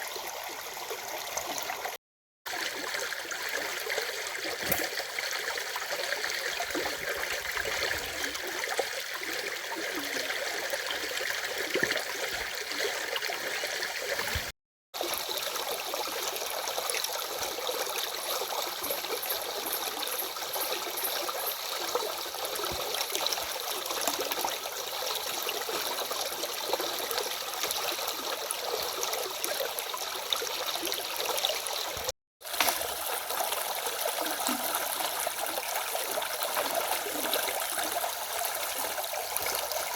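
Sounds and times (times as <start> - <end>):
stream flowing and trickling: 0.0 - 39.9.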